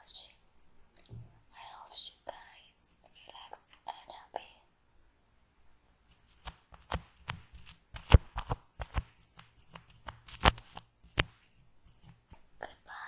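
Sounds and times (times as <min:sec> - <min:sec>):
shaving foam crackling and popping: 0:06.1 - 0:12.4.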